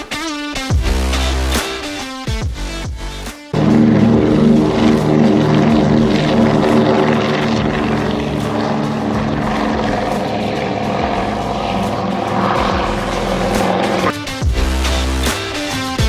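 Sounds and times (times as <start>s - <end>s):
propeller plane drone: 3.6s - 14.2s.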